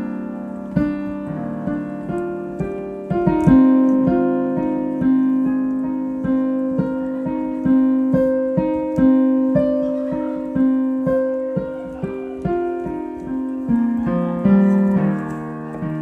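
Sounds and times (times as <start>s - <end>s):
solo piano improvisation: 0.0s - 16.0s.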